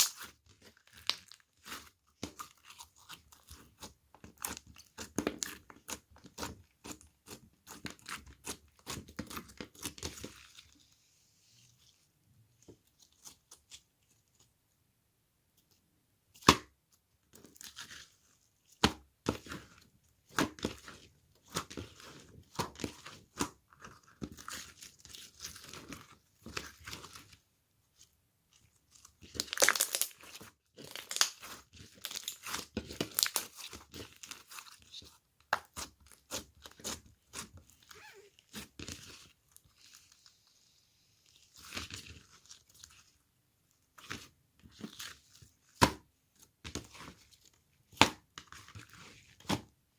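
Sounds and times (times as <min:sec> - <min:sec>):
crinkling and tearing: 0:29.3 - 0:35.0.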